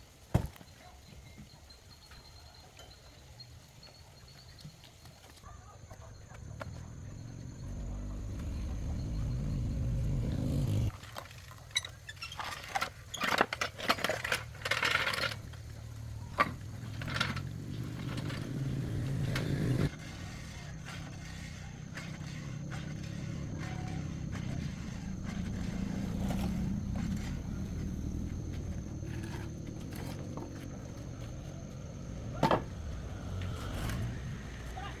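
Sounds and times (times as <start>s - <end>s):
diesel tractor engine running: 6.5s - 10.9s, 15.3s - 35.0s.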